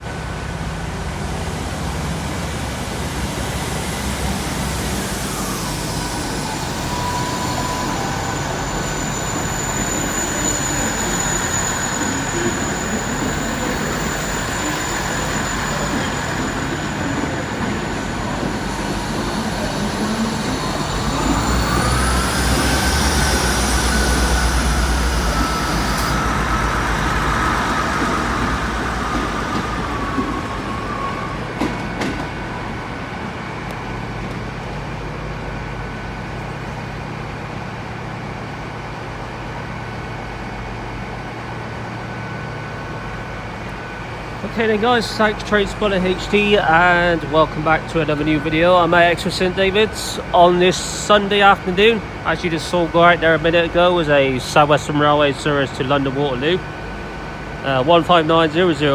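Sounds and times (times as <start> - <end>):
diesel train engines droning: 0.0 - 58.9
transmission whining: 0.8 - 37.4, 41.2 - 58.9.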